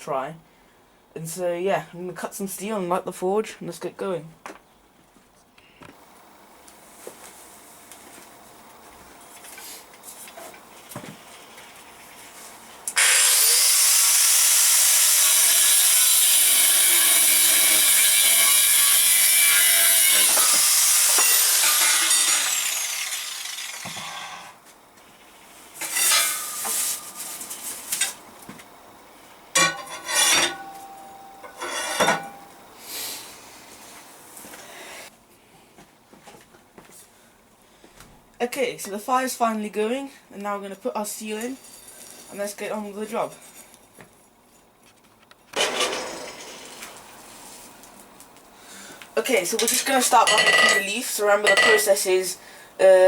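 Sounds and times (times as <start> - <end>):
power cutting tool slicing steel: 13.0 - 24.6, 25.8 - 27.2, 29.6 - 32.2, 45.6 - 47.0.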